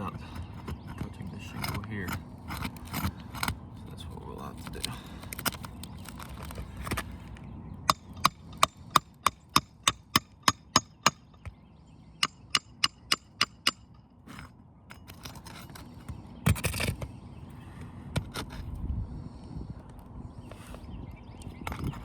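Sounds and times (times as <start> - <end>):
hammer tapping a nail: 7.9 - 11.5, 12.2 - 13.9.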